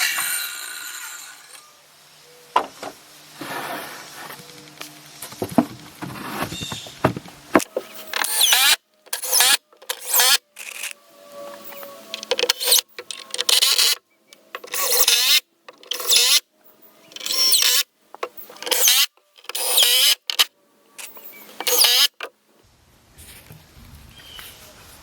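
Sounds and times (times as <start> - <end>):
power tool motor bursts: 0.0 - 1.6, 8.0 - 10.9, 11.6 - 14.0, 14.6 - 16.4, 17.1 - 17.9, 18.5 - 22.3.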